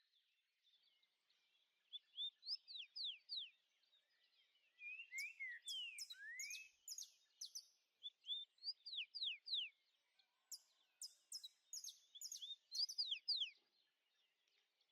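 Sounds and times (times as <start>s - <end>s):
songbirds whistling: 1.9s - 3.6s, 4.6s - 9.8s, 10.5s - 13.6s.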